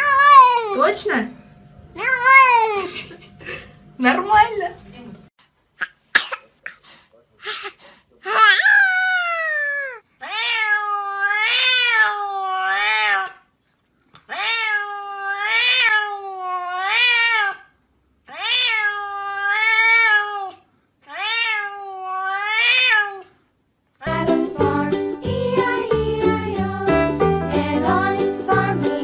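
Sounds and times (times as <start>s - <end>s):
cat meowing: 2.0s - 2.9s, 8.3s - 13.4s, 14.3s - 17.7s, 18.3s - 23.3s.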